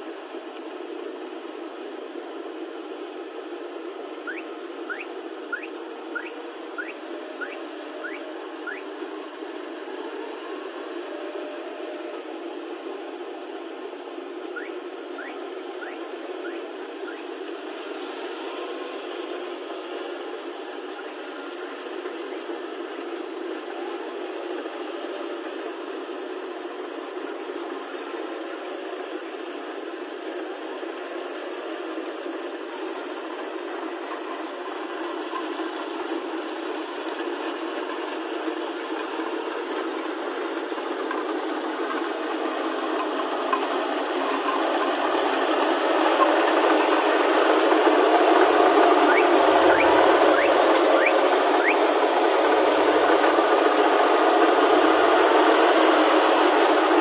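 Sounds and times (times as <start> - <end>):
combine harvester engine: 0.0 - 57.0.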